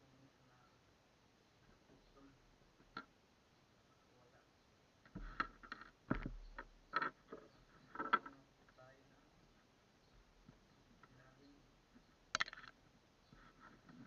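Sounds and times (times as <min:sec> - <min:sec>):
faint hiss: 0:00.0 - 0:14.0.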